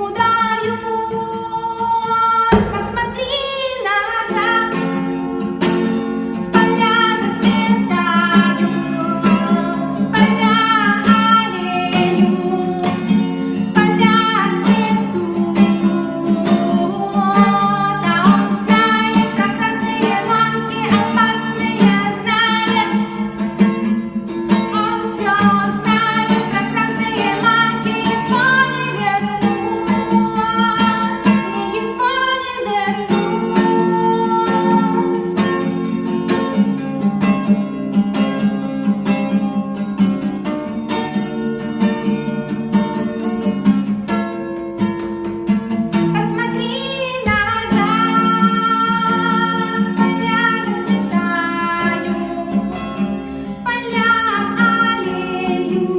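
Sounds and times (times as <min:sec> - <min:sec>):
acoustic guitar: 0:00.0 - 0:55.9
person singing: 0:53.7 - 0:55.9.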